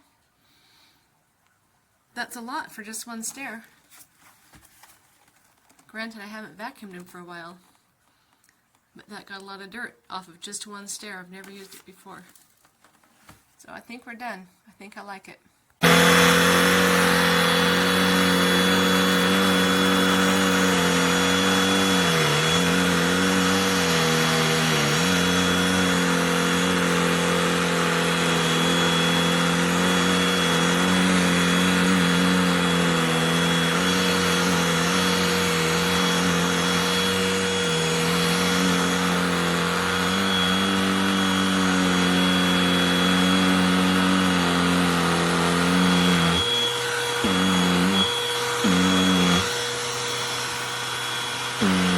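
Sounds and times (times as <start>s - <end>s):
handheld vacuum running: 15.8s - 51.9s.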